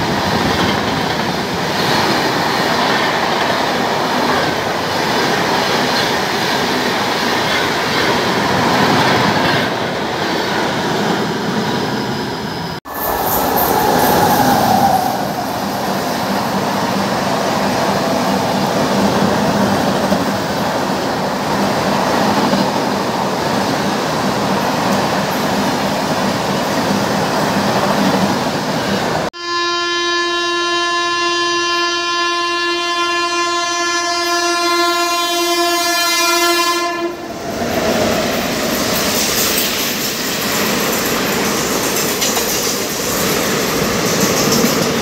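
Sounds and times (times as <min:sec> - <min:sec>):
train wheels clattering on rail: 0:00.0 - 0:12.0, 0:13.1 - 0:29.2, 0:37.4 - 0:45.0
train approaching and passing: 0:00.0 - 0:45.0.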